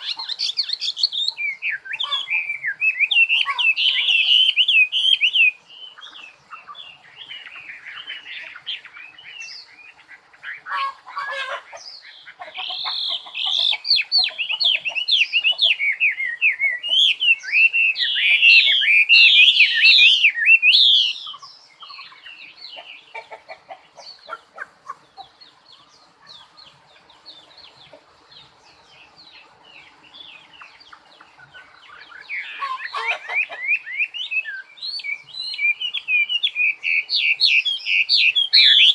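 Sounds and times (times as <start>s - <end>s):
songbird chirping and trilling: 0.0s - 38.9s.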